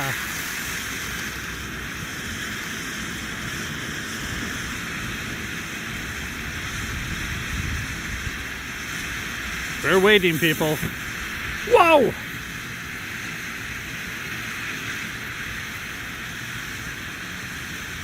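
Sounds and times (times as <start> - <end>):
firework fountain hissing: 0.0 - 18.0.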